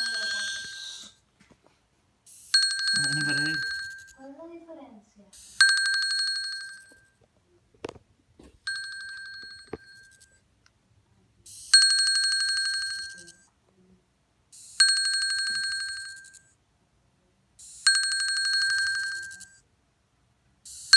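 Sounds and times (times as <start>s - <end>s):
smartwatch vibrating with high buzz: 0.0s - 1.2s, 2.3s - 4.2s, 5.4s - 7.1s.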